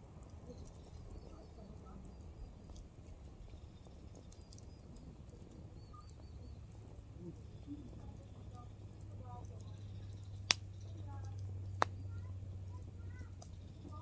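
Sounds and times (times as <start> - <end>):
campfire crackling and popping: 7.9 - 14.0.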